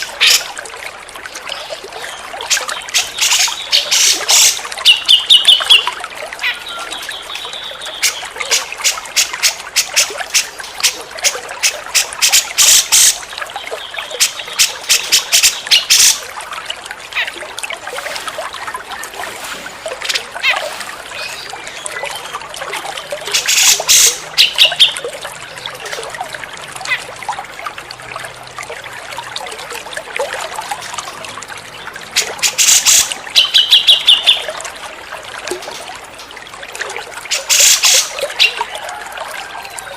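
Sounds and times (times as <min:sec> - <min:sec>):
trickle of running water: 0:00.0 - 0:39.9
bird chattering and whistling: 0:23.4 - 0:25.0, 0:32.4 - 0:34.4.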